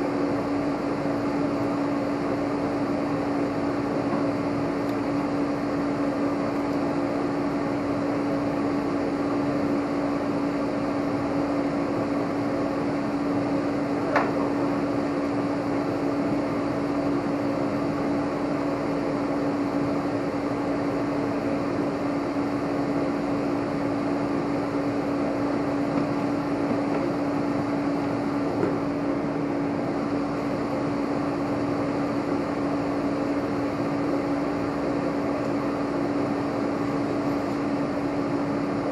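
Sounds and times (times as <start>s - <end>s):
machine hum: 0.0s - 38.9s.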